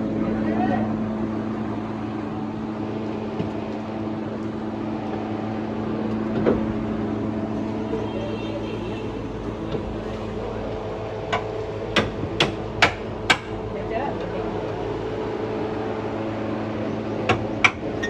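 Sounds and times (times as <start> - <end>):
mechanical hum: 0.0 - 18.0.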